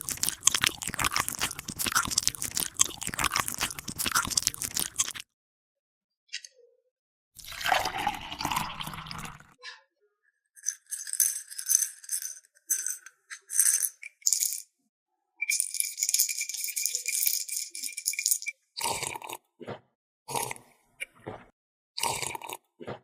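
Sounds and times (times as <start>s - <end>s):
plastic toy pieces rattling: 0.0s - 5.2s, 10.6s - 14.7s, 15.5s - 18.6s.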